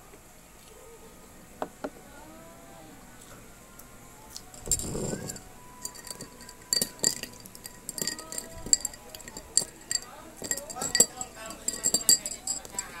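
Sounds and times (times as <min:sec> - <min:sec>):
glassware and dishes clinking: 0:04.5 - 0:13.0.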